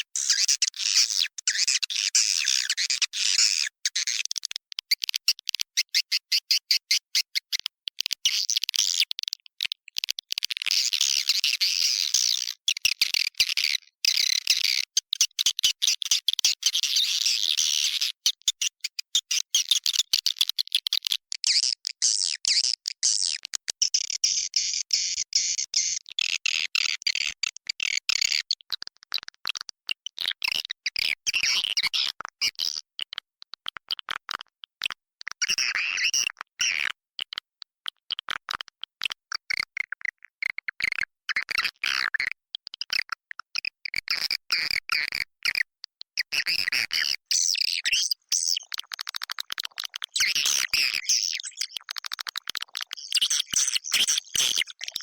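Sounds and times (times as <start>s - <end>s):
swiftlets twittering chirps: 49.9s - 55.0s.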